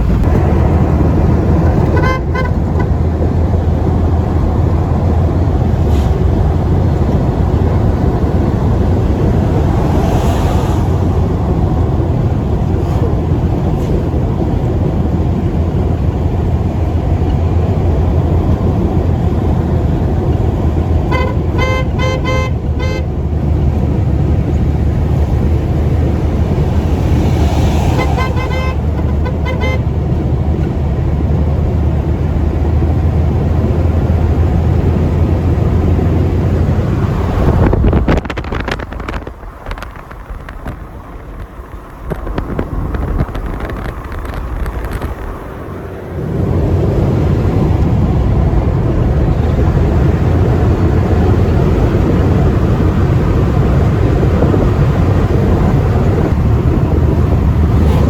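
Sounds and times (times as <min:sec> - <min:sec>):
road vehicle rumbling: 0:00.0 - 0:58.0
short horn toots: 0:21.1 - 0:23.1, 0:27.8 - 0:30.0.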